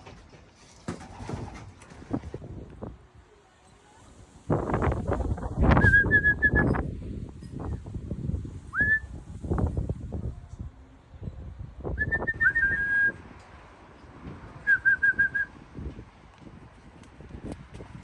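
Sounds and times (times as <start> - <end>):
person whistling: 12.0 - 13.2, 14.7 - 15.5.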